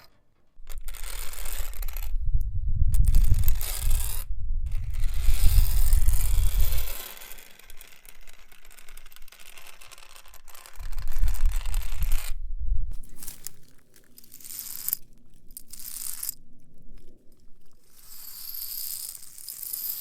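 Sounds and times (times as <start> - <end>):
metal nail scratching wall: 0.0 - 2.4, 3.0 - 20.0
low rumble: 11.0 - 13.2.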